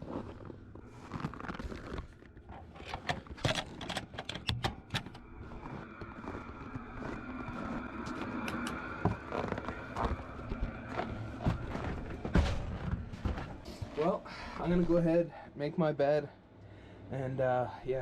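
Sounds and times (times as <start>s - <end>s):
handling clicks and knocks: 2.5s - 5.2s.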